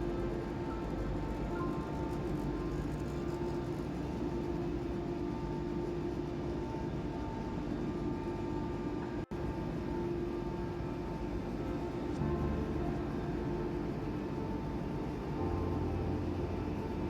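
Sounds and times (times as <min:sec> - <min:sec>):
machinery drone: 0:09.3 - 0:17.0.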